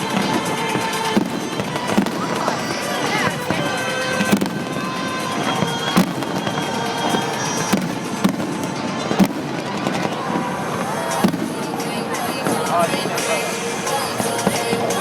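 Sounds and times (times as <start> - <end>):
firework shells bursting: 0.0 - 13.3
fireworks rumble and crackle: 0.0 - 15.0.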